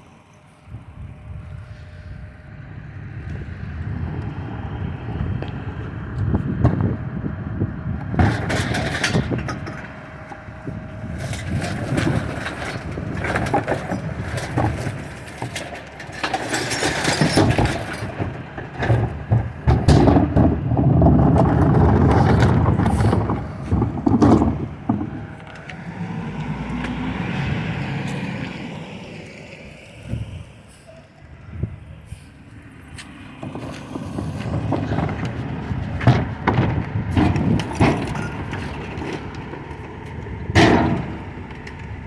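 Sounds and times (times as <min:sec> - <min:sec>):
recycling truck engine running: 0:00.0 - 0:42.0
clanks and knocks: 0:08.0 - 0:27.5, 0:32.9 - 0:42.0
dense rattling clatter: 0:08.0 - 0:27.8, 0:33.3 - 0:42.0.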